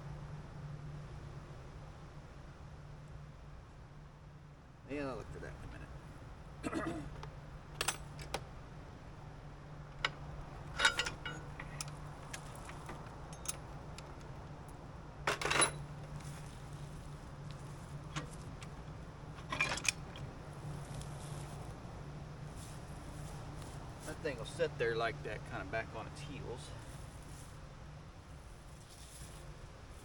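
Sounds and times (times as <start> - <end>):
steady low hum: 0.0 - 30.0
metal hitch hardware clanking: 7.1 - 8.5, 9.9 - 14.4, 15.2 - 16.6, 17.5 - 20.5.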